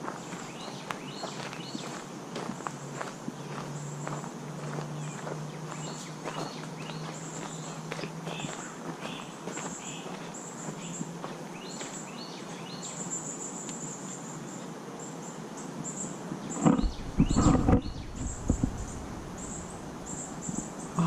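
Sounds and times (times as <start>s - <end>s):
insects buzzing: 0.0s - 21.0s
bird chirps: 5.0s - 21.0s
wind buffeting microphone: 16.6s - 20.8s.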